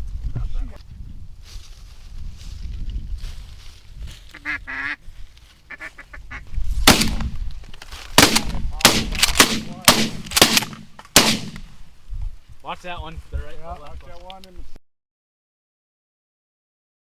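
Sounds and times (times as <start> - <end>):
ducks quacking: 4.3 - 5.0, 5.7 - 6.5
loud sharp bangs: 6.8 - 7.3, 8.2 - 11.7.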